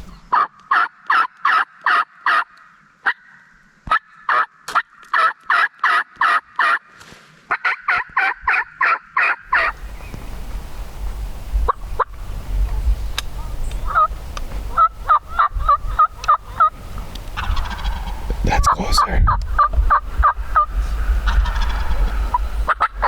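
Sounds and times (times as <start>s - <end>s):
turkey call yelps: 0.3s - 6.8s, 7.5s - 9.7s, 13.8s - 14.1s, 14.7s - 23.0s.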